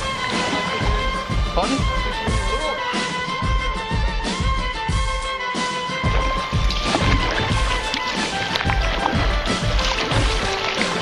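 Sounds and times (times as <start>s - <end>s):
background music with low beat: 0.0s - 11.0s.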